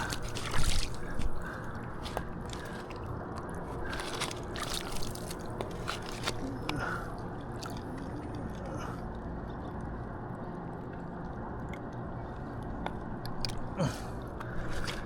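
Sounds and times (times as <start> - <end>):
wet squishy handling of fish: 0.0 - 10.0
low background rush: 0.0 - 15.0.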